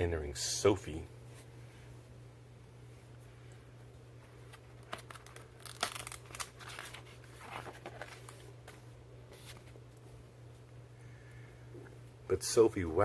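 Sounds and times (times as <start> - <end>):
steady low hum: 0.0 - 13.0
paper pages rustling: 4.4 - 9.8.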